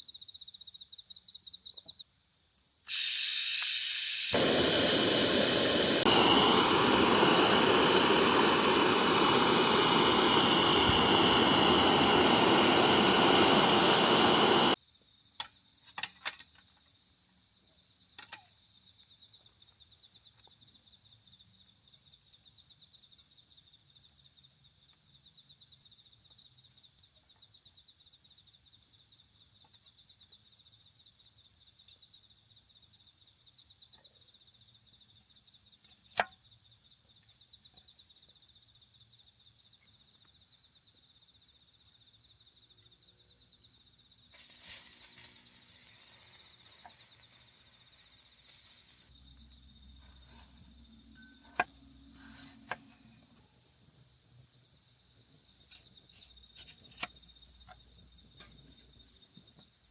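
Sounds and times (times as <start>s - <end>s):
crickets chirping: 0.0s - 59.9s
rustling hiss: 2.9s - 14.8s, 44.2s - 53.0s.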